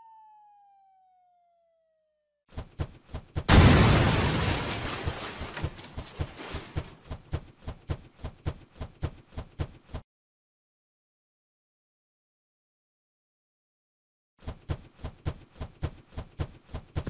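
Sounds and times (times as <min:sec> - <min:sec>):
cartoon explosion: 0:03.5 - 0:04.6.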